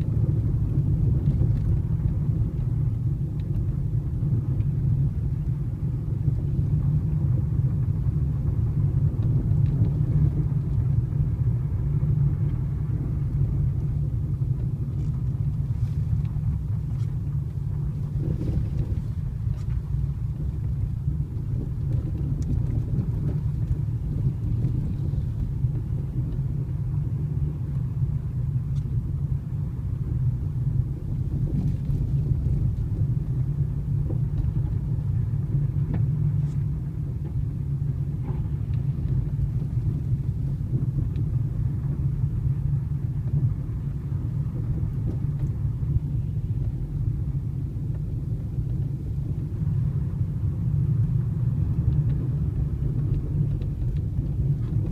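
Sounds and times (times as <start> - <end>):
low road rumble: 0.0 - 54.9
faint steering knock: 34.0 - 41.3.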